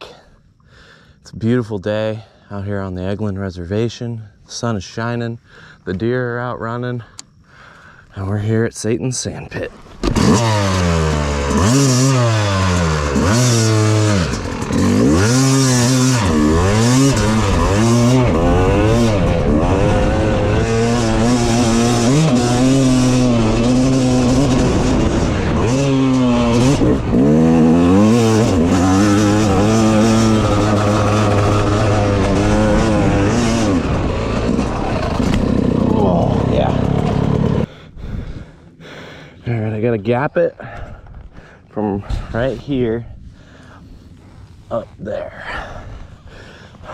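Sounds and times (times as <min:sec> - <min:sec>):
dirt bike engine revving: 0:09.8 - 0:37.7.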